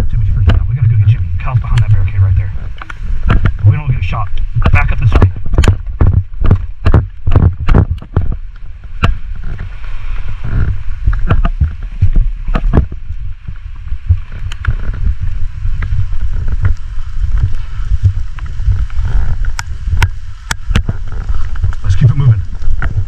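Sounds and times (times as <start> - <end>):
storm wind and rain on microphone: 0.0 - 23.0
sharp clicks and knocks: 0.4 - 2.1, 2.7 - 9.7, 10.6 - 15.0, 19.4 - 23.0.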